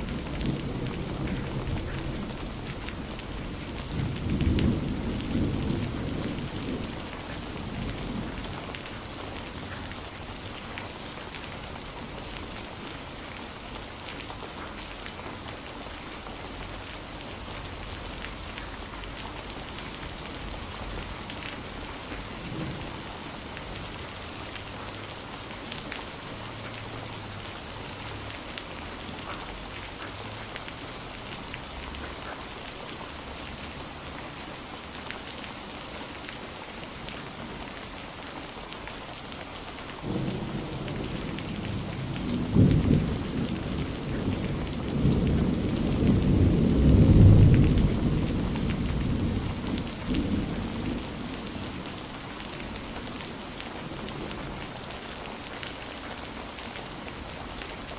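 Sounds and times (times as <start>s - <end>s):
thunder rumbling: 0.0s - 10.6s, 17.7s - 24.2s, 40.0s - 54.8s
rain falling: 0.0s - 57.9s.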